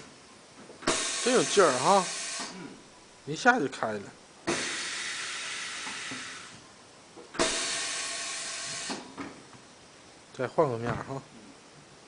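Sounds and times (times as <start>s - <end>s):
compressed air hissing: 0.8s - 2.8s, 4.5s - 6.6s, 7.4s - 9.2s.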